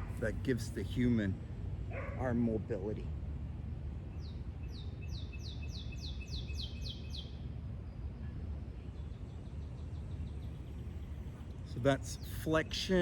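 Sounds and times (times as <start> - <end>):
songbird singing: 0.0 - 3.0, 3.9 - 13.0.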